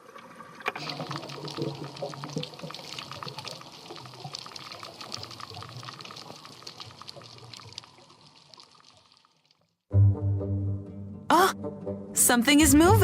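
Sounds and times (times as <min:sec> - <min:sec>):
crackle of tiny underwater clicks: 0:00.6 - 0:09.7.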